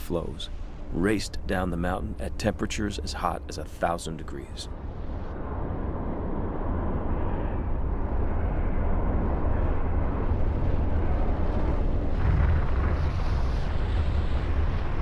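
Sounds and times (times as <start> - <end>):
volcano eruption rumbling roar: 4.8 - 15.0.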